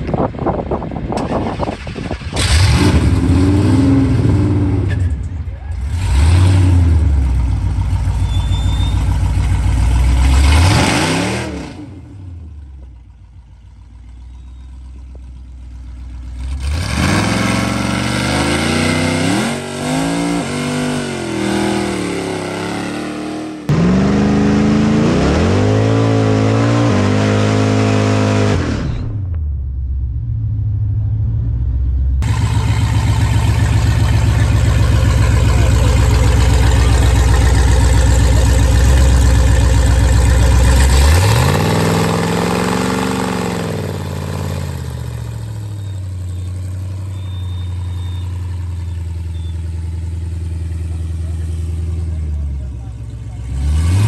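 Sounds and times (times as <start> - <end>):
engine high-revving during burnout: 1.2 - 5.1, 5.8 - 7.4, 10.0 - 12.4, 16.4 - 29.3, 30.1 - 45.9, 53.3 - 54.0
car engine revving: 2.3 - 12.6, 16.2 - 54.0.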